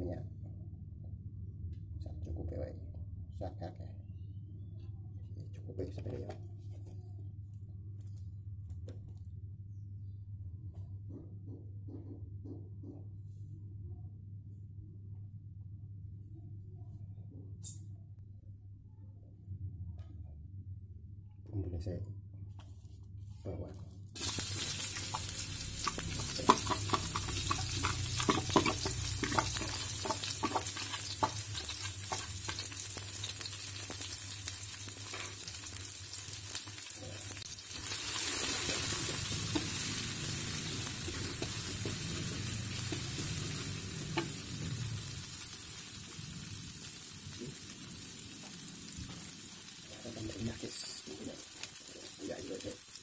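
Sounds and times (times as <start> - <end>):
utensils scraping a wok: 24.2 - 32.9
vegetables sizzling in hot oil: 24.2 - 53.0.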